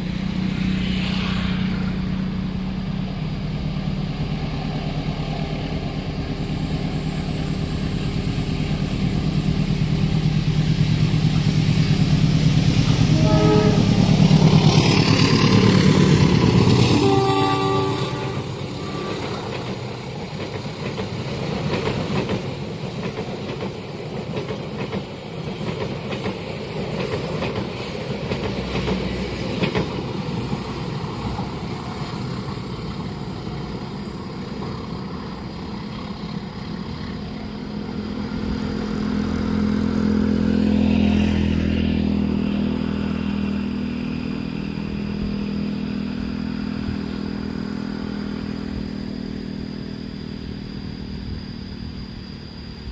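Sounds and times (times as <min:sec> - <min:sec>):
train wheels clattering over rails: 0:18.4 - 0:40.2
engine hum: 0:24.6 - 0:52.9.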